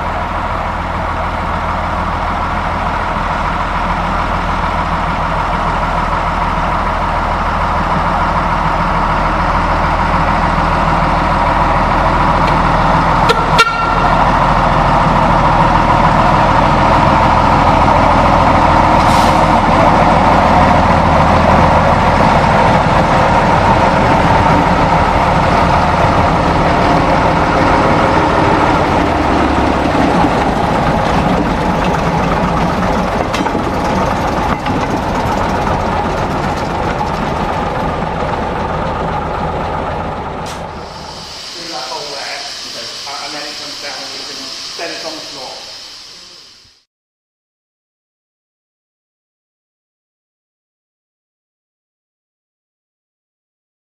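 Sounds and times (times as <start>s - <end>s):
diesel locomotive idling: 0.0s - 46.8s
short toot: 13.2s - 14.1s.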